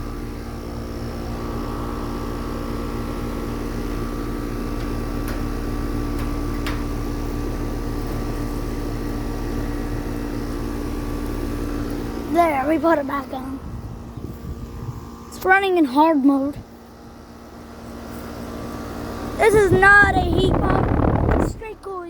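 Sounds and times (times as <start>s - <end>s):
air conditioner humming: 0.0s - 22.0s.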